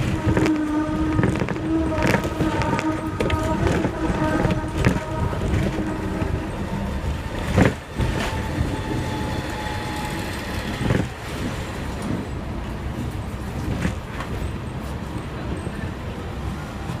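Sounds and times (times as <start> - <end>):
tram knocks and clanks: 0.0 - 17.0
tram rumbling on tracks: 0.0 - 17.0.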